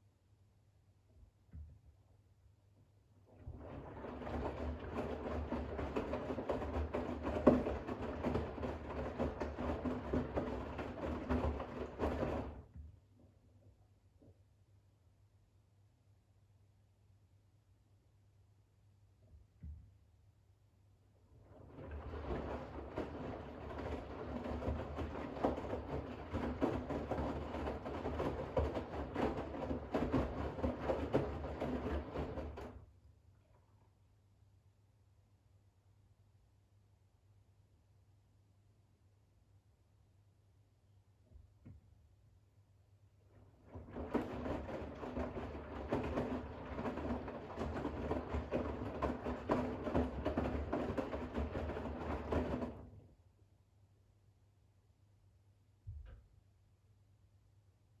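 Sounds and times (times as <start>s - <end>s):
washing machine drum sloshing: 3.3s - 12.8s, 21.3s - 32.8s, 43.3s - 53.0s
wet towels tumbling: 43.5s - 52.8s.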